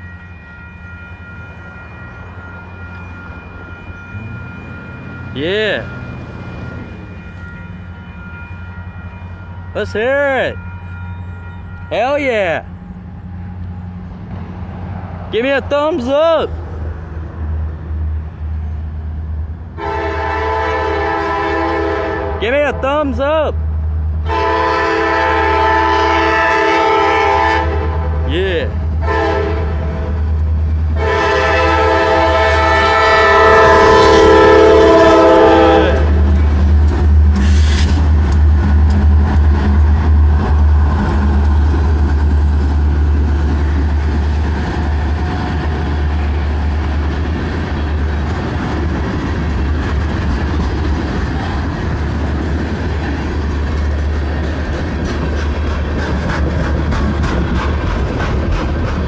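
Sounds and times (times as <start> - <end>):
locomotive air horn: 6.7 - 12.2, 19.8 - 22.5, 24.2 - 28.3, 29.0 - 29.9, 31.0 - 36.2, 37.4 - 38.0
wheels clicking over rail joints: 43.0 - 59.0.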